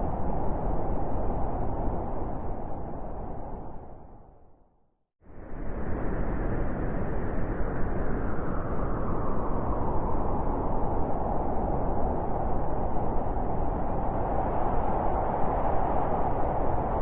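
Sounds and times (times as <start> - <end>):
wind blowing: 6.3 - 17.0.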